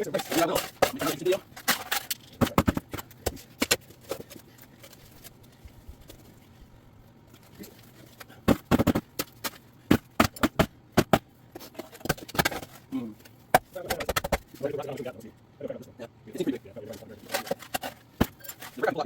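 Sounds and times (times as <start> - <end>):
hand tools digging dirt and concrete: 0.0 - 3.8.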